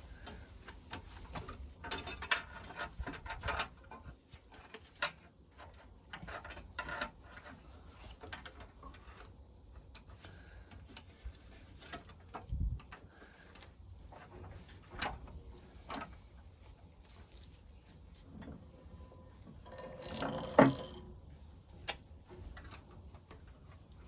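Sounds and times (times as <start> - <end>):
metal pipes clinking and scraping: 0.2 - 9.3, 18.3 - 21.4.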